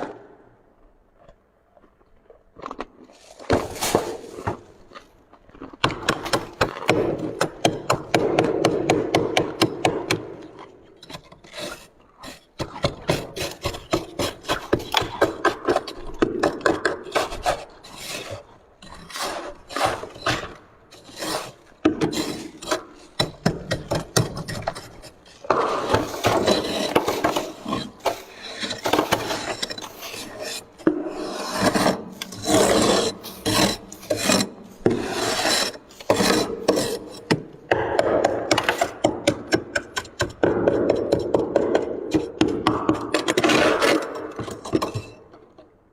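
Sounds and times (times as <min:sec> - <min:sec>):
scraping freezer frost: 0:17.0 - 0:37.4.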